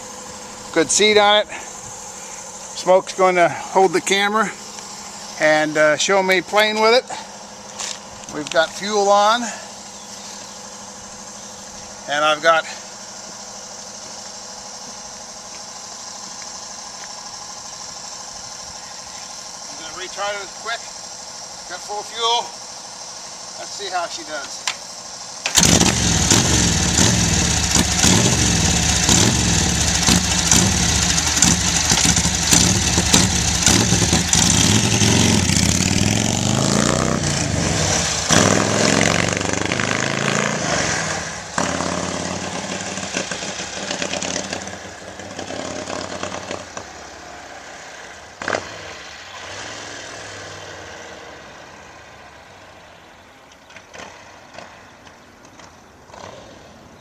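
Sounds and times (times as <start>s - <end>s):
motorcycle engine revving: 25.4s - 51.8s.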